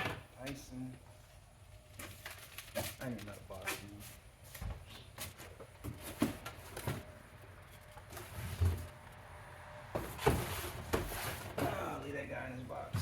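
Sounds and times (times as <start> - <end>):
knocks and thumps of boxes handled: 4.6 - 7.2, 9.9 - 12.0.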